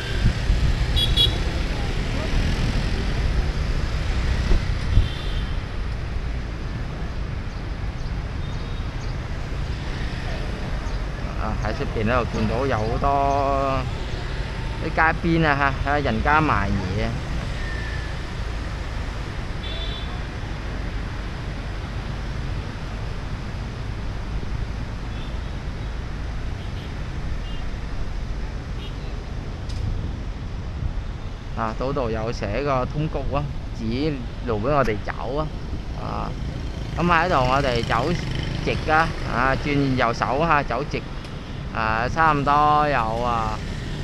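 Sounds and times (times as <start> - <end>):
wind rumbling on microphone: 0.0 - 19.6, 27.2 - 37.8
road traffic: 0.0 - 44.0.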